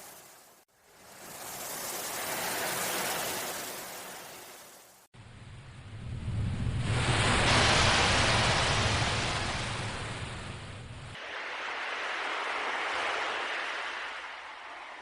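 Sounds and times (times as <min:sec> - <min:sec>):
sea waves surging: 0:06.3 - 0:15.0.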